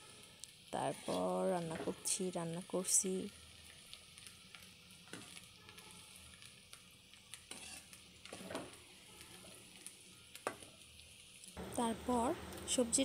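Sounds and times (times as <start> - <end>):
vegetables sizzling in oil: 0.0 - 13.0
spatula scraping pan: 0.8 - 2.0, 7.4 - 9.6.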